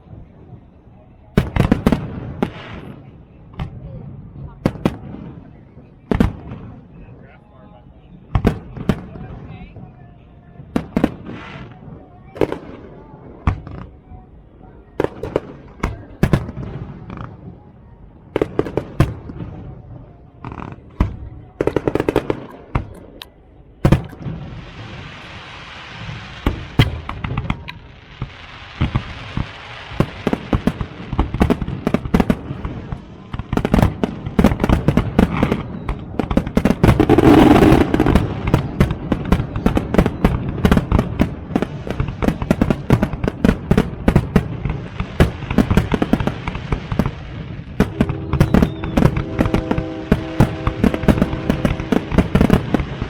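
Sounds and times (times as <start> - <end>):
firework bangs: 1.3 - 3.8, 4.5 - 7.0, 8.3 - 9.5, 10.7 - 14.0, 15.0 - 17.4, 18.3 - 19.8, 20.4 - 23.1, 23.8 - 53.0
firework crackling hiss: 24.0 - 53.0
deep firework boom: 28.8 - 53.0.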